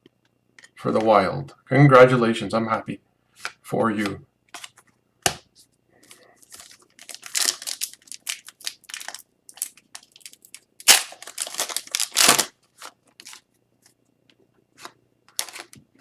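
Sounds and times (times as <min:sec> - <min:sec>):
cards being handled: 0:03.4 - 0:14.0
foil wrapper crinkling and tearing: 0:06.4 - 0:13.5, 0:15.4 - 0:15.8.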